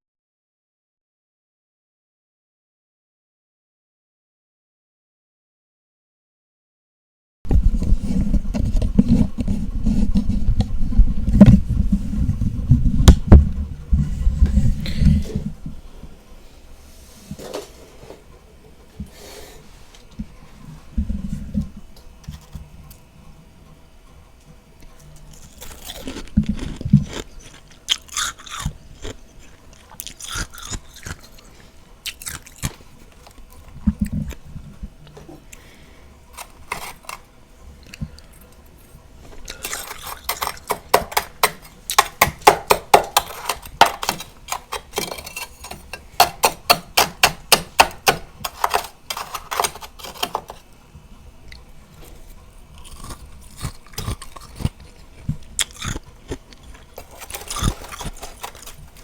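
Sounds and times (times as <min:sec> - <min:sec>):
crunching frost being eaten: 0:25.2 - 0:34.4, 0:39.4 - 0:50.6, 0:51.5 - 0:59.0.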